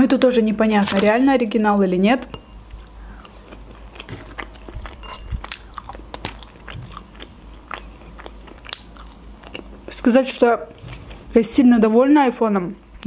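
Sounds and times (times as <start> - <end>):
mouth chewing fries: 2.6 - 11.5.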